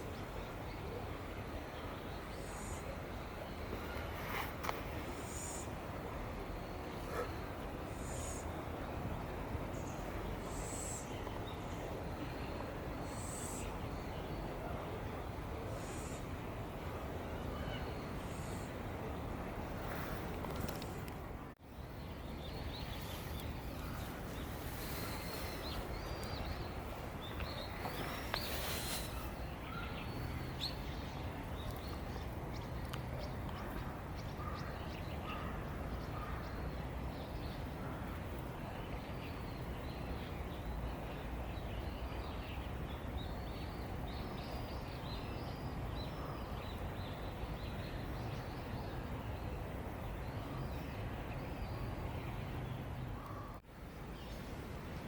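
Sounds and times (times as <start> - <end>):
birds chirping: 17.2 - 55.0.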